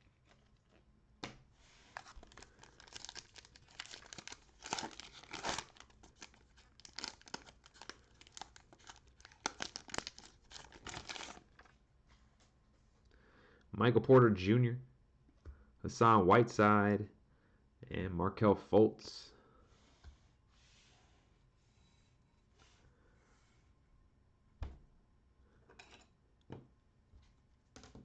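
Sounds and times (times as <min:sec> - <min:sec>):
cellophane wrapper tearing and crinkling: 0:01.9 - 0:11.7.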